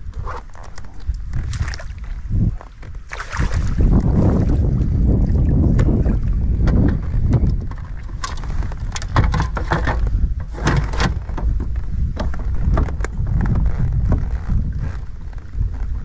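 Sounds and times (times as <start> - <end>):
wind buffeting microphone: 0.0 - 16.0
knocks and clattering: 9.0 - 13.0.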